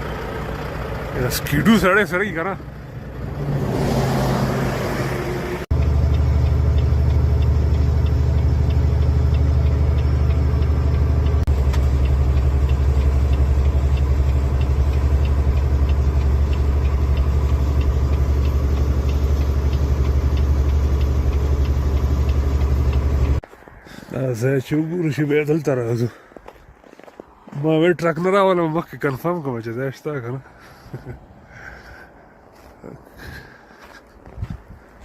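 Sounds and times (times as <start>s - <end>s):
vehicle engine humming: 0.0s - 35.0s
faint regular ticking: 5.7s - 23.4s.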